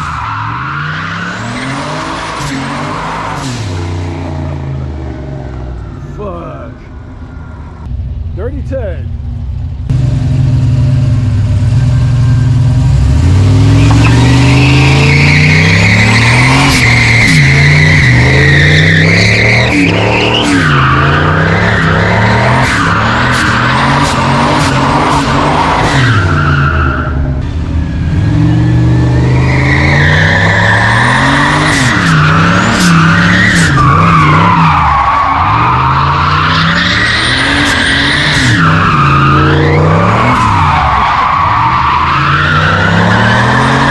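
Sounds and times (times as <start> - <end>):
truck engine revving hard: 9.9 - 43.9.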